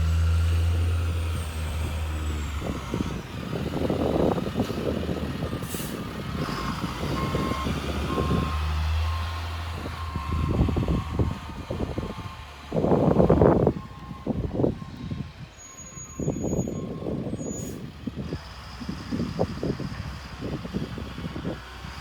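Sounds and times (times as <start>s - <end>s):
truck engine humming: 0.0s - 22.0s
reversing alarm beeps: 7.1s - 11.2s, 15.6s - 17.6s.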